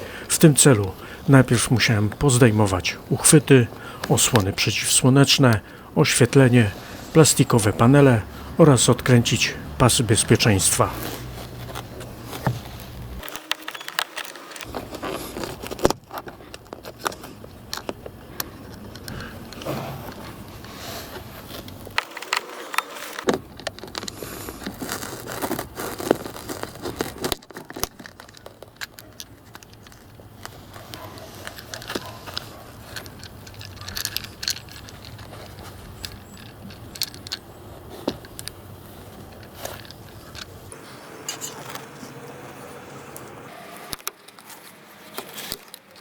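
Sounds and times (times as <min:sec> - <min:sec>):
tools rattling: 0:27.5 - 0:37.5.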